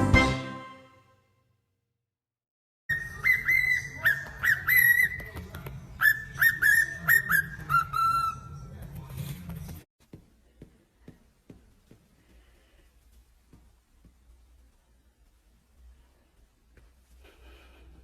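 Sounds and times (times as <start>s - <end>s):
parrot whistling a tune: 2.9s - 5.3s, 6.0s - 8.6s.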